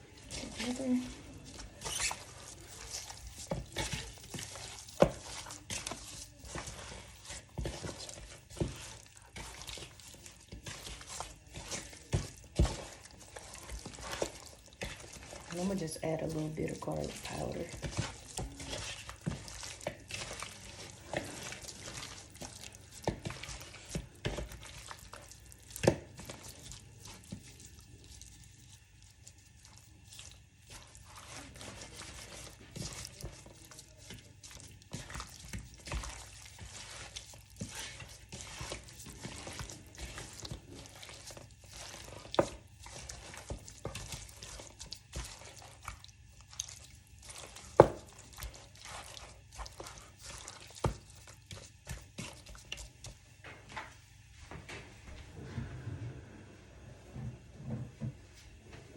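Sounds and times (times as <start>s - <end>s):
wet squelches of mixing chicken: 0.0s - 58.9s.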